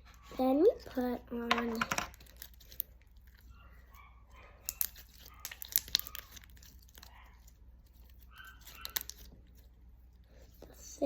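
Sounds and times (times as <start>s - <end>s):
slime crackling and clicking: 4.6s - 7.1s, 8.4s - 9.3s.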